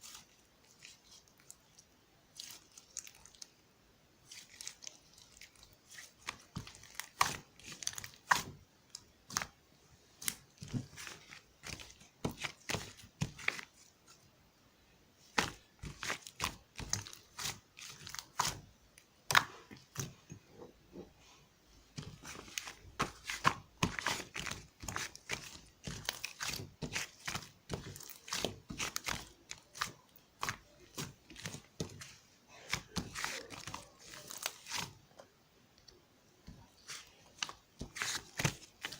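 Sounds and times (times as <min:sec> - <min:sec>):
slime squished by hand: 0:04.2 - 0:13.9, 0:22.0 - 0:35.1, 0:36.5 - 0:38.9.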